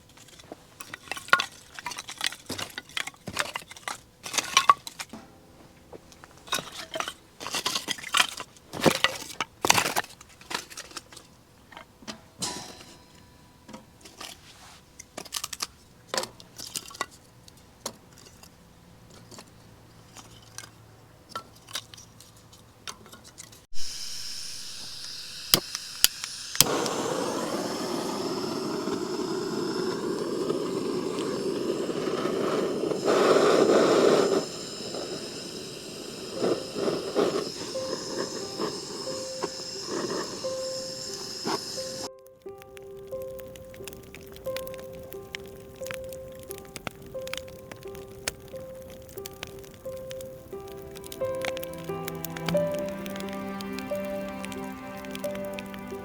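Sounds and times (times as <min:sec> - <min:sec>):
steady hissing rush: 0:23.7 - 0:56.0.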